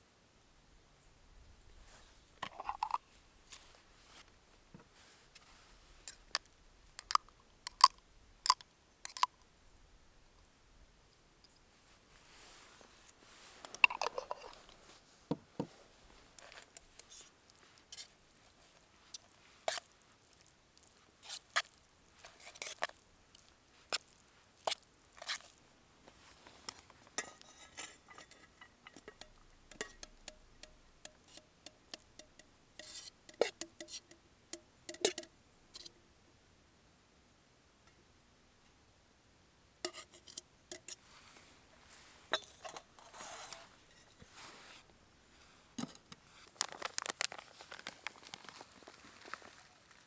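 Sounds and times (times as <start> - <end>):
small objects clicking and clinking: 7.0 - 9.4, 27.2 - 34.2, 46.5 - 48.6.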